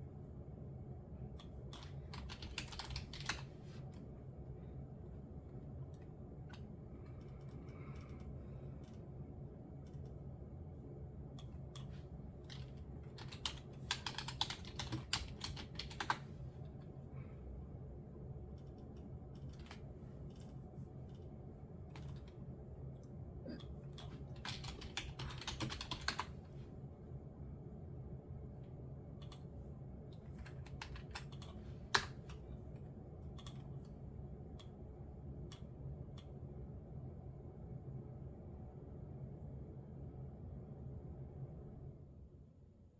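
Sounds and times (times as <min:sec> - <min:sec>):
faint low hum: 0:00.0 - 0:42.9
typing on computer keyboard: 0:01.4 - 0:03.6, 0:06.5 - 0:09.0, 0:11.4 - 0:16.3, 0:18.5 - 0:20.5, 0:21.9 - 0:22.4, 0:23.9 - 0:26.3, 0:30.2 - 0:32.4, 0:33.4 - 0:33.9.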